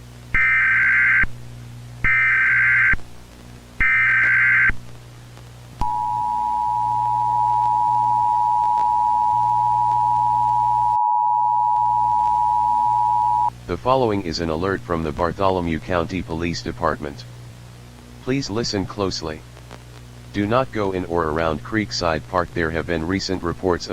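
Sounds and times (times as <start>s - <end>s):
low hum: 0.0s - 23.7s
two-tone attention signal: 5.8s - 13.5s.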